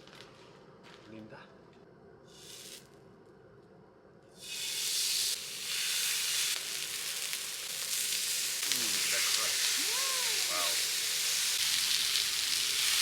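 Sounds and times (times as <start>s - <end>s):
food sizzling on a pan: 4.4s - 13.0s.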